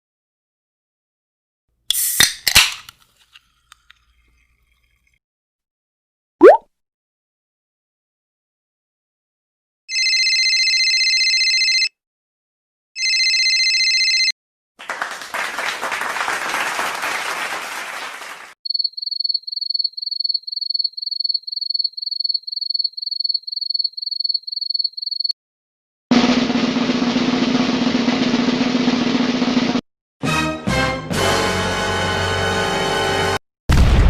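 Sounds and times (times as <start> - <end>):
telephone ringing: 9.9 - 12.0, 13.0 - 14.4
applause: 14.8 - 18.6.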